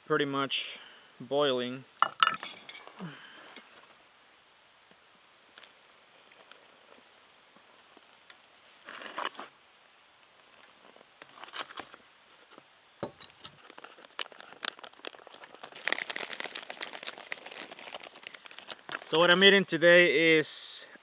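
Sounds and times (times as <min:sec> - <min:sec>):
foil pouch crinkling: 0:13.2 - 0:19.4.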